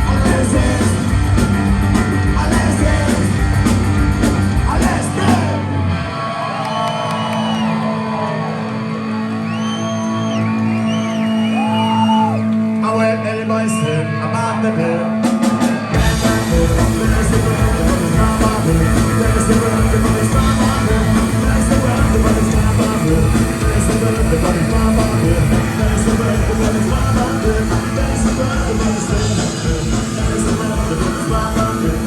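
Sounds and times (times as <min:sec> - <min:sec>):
person singing: 0:00.0 - 0:01.4, 0:02.2 - 0:03.4, 0:13.0 - 0:32.0
drum kit: 0:00.0 - 0:05.6, 0:15.2 - 0:32.0
bass guitar: 0:00.0 - 0:32.0
electric guitar: 0:00.0 - 0:32.0.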